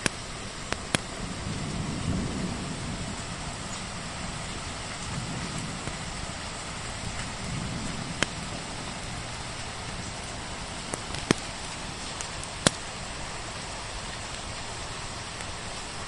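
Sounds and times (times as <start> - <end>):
wood fire crackling and popping: 0.0 - 1.1, 5.0 - 6.1, 7.1 - 8.7, 9.6 - 13.5
rain hissing: 0.0 - 16.0.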